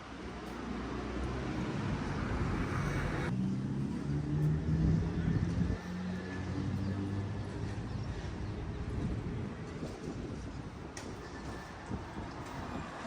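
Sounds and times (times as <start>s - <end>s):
vehicle engine hum passing: 0.4s - 8.6s.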